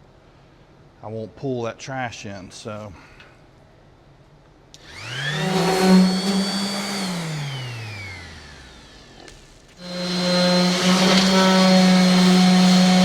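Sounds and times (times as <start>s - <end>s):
electric grinder spinning: 4.8s - 13.0s.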